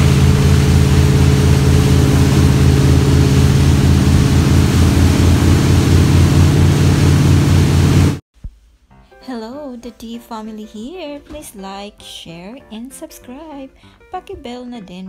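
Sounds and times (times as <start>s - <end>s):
motorboat engine running: 0.0s - 8.2s
rushing air and water: 0.0s - 8.2s.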